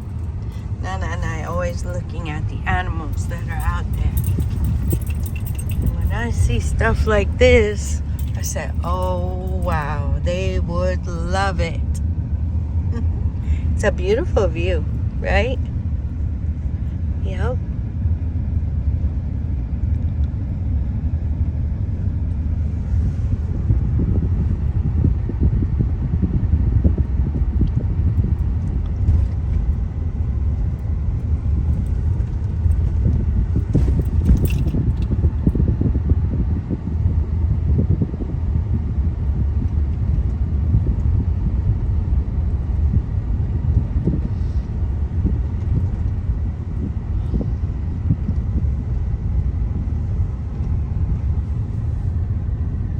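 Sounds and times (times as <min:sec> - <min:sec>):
car road rumble: 0:00.0 - 0:52.9
sharp rattle: 0:03.2 - 0:07.1.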